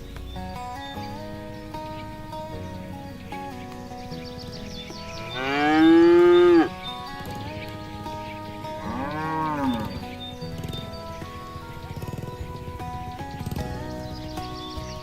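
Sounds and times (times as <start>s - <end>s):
background music with held tones: 0.0s - 15.0s
cow mooing: 5.2s - 6.9s, 8.7s - 10.2s.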